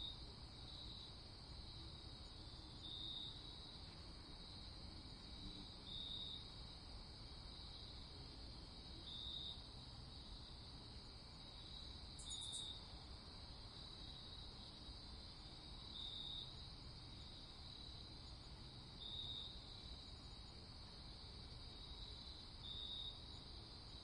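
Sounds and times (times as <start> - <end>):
crickets trilling: 0.0 - 24.0
loud insect chirp: 0.0 - 24.0.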